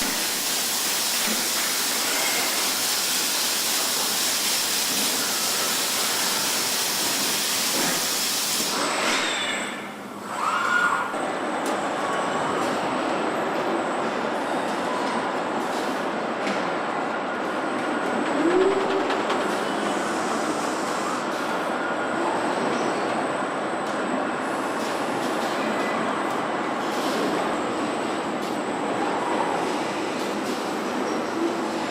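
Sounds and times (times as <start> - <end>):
machinery rumble and hiss: 0.0 - 13.4, 15.4 - 31.9
short machine squeals: 8.9 - 9.9.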